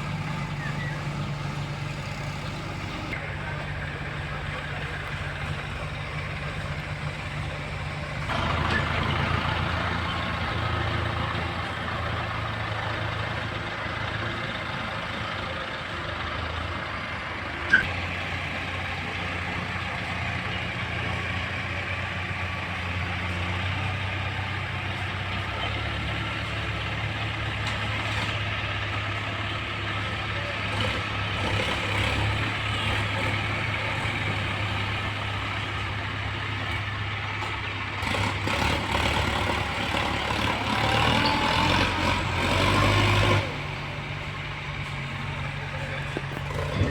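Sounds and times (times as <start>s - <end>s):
heavy diesel engine running: 0.0s - 46.9s.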